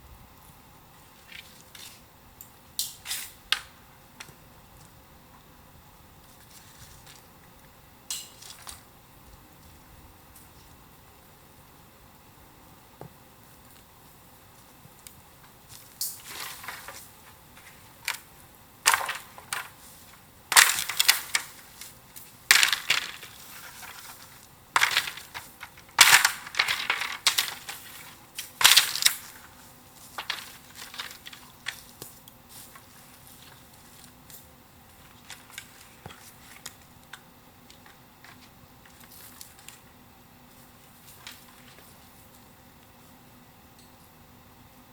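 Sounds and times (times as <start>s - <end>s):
bamboo and wood cracking: 15.7s - 34.4s.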